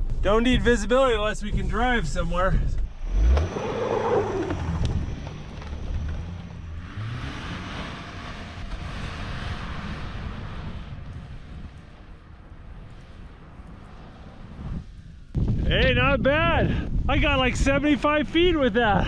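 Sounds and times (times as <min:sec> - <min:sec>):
car engine running hard: 0:01.5 - 0:15.4.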